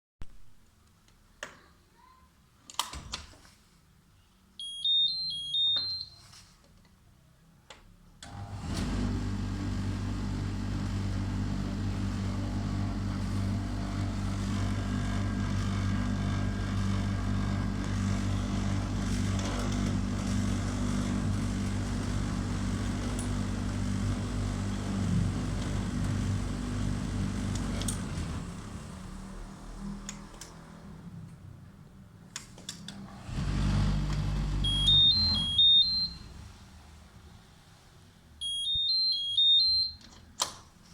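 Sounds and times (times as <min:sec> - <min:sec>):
melody of beeps: 0:04.6 - 0:06.2, 0:34.6 - 0:36.2, 0:38.4 - 0:40.0
dryer drum motor humming: 0:08.3 - 0:29.5.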